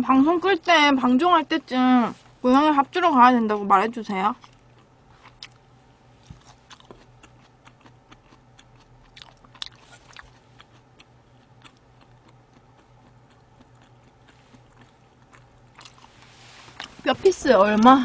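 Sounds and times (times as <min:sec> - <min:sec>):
wet chewing clicks: 0:06.2 - 0:16.1.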